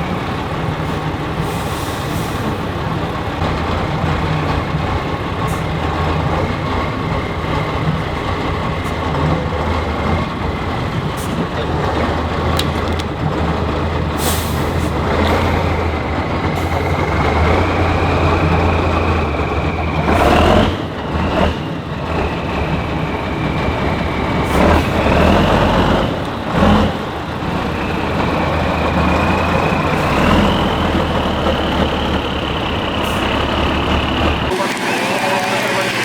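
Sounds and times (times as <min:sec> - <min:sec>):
diesel truck engine running hard: 0:00.0 - 0:36.0
high engine whine: 0:26.1 - 0:36.0.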